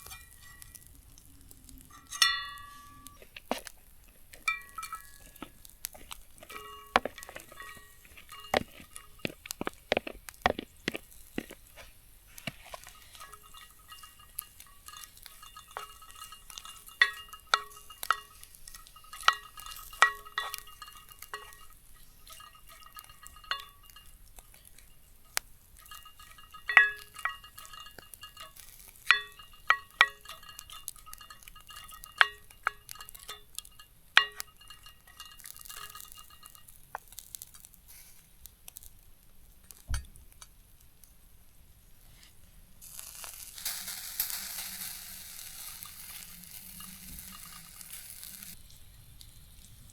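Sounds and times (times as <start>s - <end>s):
utensil clinking against dish: 0.0s - 1.0s, 1.9s - 37.0s.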